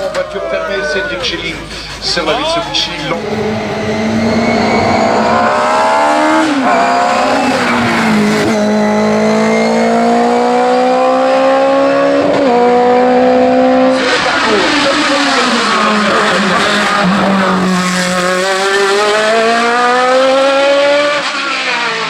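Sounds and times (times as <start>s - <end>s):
burst of rushing noise: 2.8s - 7.9s
car engine at full throttle: 2.8s - 22.0s.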